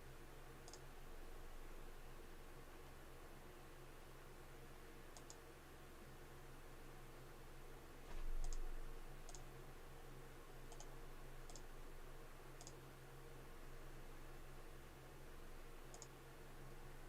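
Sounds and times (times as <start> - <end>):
low electrical hum: 0.0 - 17.0
computer mouse clicking: 0.6 - 0.9, 5.1 - 5.4, 8.4 - 9.5, 10.7 - 10.9, 11.5 - 11.7, 12.6 - 12.8, 15.9 - 16.2.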